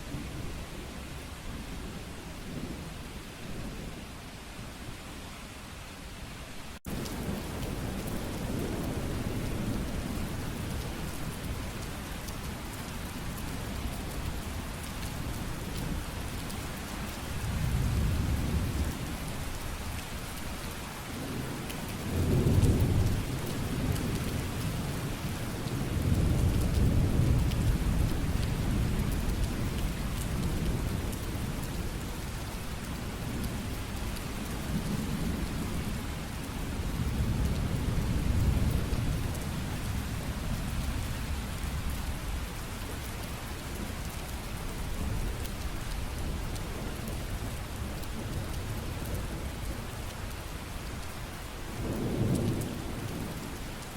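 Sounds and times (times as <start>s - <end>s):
heavy rain: 0.0s - 53.9s
low rolling thunder: 6.9s - 11.7s, 17.4s - 19.3s, 21.1s - 33.8s, 51.7s - 53.6s.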